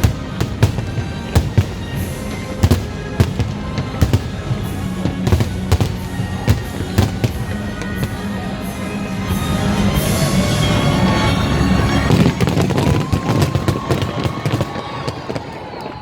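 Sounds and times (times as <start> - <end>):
loud music: 0.0 - 12.7
fireworks bangs: 0.0 - 16.0.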